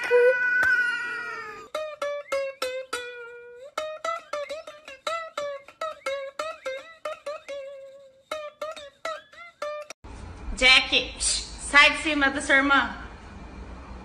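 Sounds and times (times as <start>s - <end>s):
bouncy plucked-string music: 1.7s - 10.0s.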